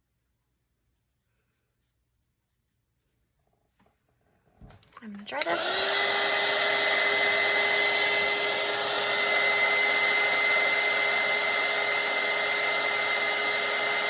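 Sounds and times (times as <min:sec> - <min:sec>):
hair dryer running: 0:05.0 - 0:14.0.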